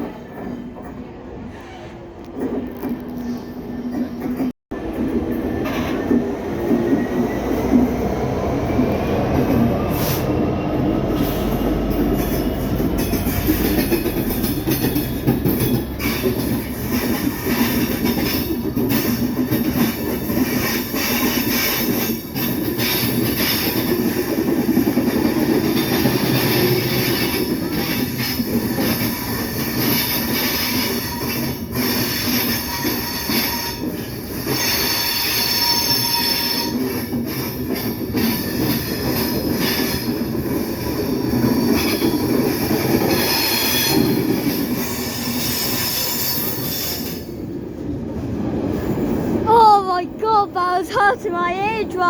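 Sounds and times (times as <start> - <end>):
train wagons rumbling over rails: 0.0 - 49.5.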